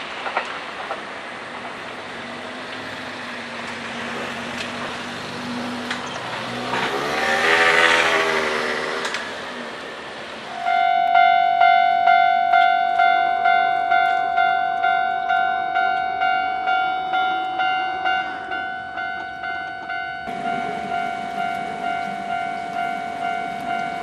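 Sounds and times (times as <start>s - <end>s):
electric train running past: 0.0s - 24.0s
level crossing bell clanging: 10.5s - 24.0s.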